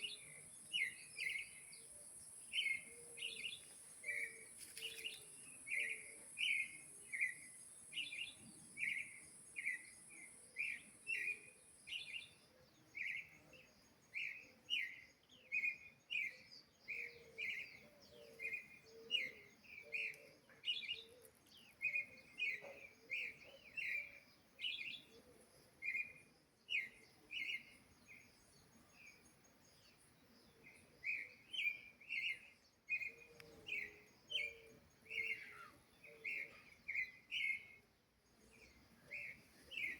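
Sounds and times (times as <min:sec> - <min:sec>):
thrush singing whistled notes: 0:31.0 - 0:37.8.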